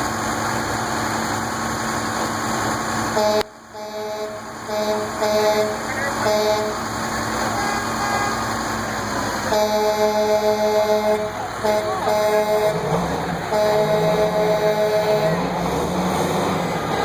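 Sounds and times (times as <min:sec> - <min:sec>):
engine hum: 0:00.0 - 0:17.0
multi-tone vehicle horn blasts: 0:03.2 - 0:06.8, 0:07.5 - 0:08.5, 0:09.5 - 0:12.8, 0:13.5 - 0:15.4.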